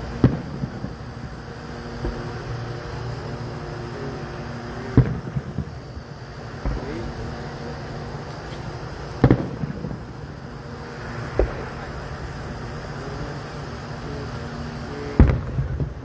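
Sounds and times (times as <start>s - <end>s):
distant fireworks booms: 0.0s - 16.0s
steady low hum: 0.0s - 16.0s.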